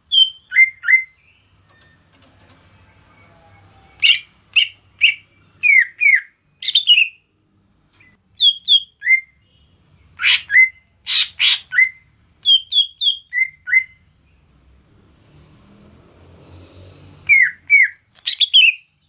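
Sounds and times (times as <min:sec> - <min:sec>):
bird singing whistled notes: 0:00.0 - 0:02.0, 0:03.2 - 0:07.2, 0:08.0 - 0:14.0, 0:17.2 - 0:19.0.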